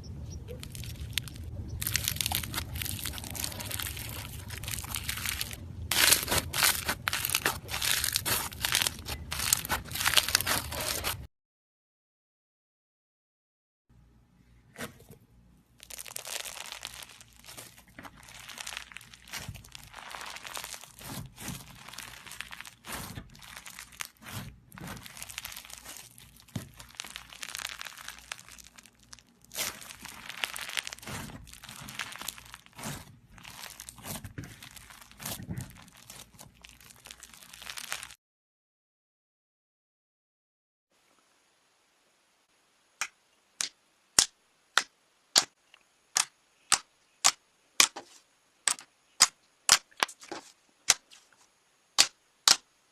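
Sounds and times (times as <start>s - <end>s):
slime squeezed by hand: 0.5s - 11.2s, 15.8s - 38.2s.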